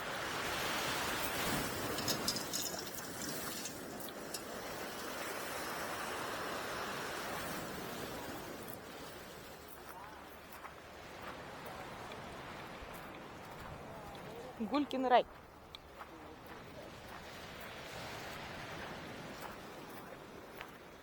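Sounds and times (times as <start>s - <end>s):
waves breaking: 0.0s - 20.9s
sharp crackles: 1.2s - 5.8s.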